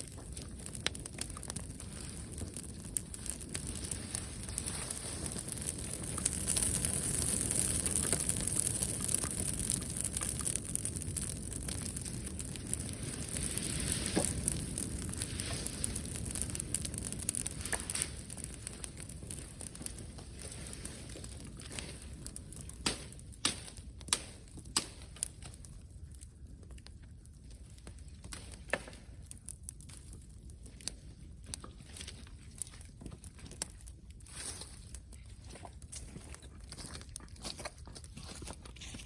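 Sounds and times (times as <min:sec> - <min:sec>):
sharp fire pops: 0:00.0 - 0:38.6
bonfire crackling: 0:00.0 - 0:39.0
rustling hiss: 0:12.8 - 0:22.1.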